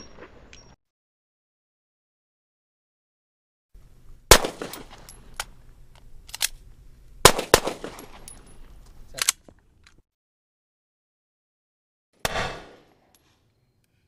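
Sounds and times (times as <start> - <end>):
handgun shots: 4.3 - 5.2, 7.3 - 8.4, 12.2 - 12.8.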